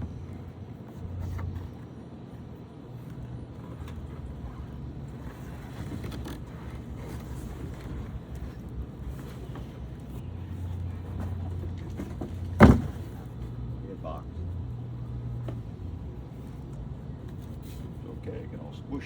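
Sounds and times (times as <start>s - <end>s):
low steady hum: 0.0s - 19.0s
cardboard box rustles and scrapes: 3.7s - 13.4s
box thump: 11.2s - 13.2s.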